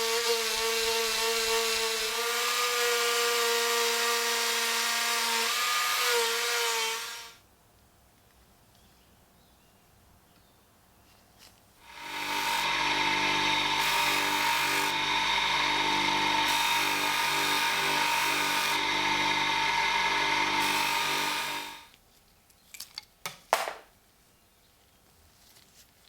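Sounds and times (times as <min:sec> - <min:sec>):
power tool spinning: 0:00.0 - 0:07.4, 0:11.9 - 0:22.0.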